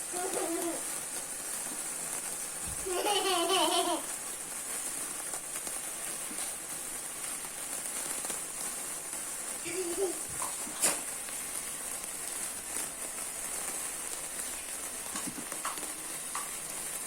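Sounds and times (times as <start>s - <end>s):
steady high hiss: 0.0s - 17.0s
child's wavering ooh: 0.1s - 0.8s.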